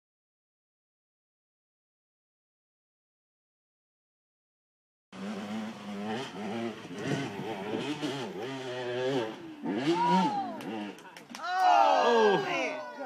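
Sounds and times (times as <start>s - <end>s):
motorcycle engine revving: 5.2s - 11.3s.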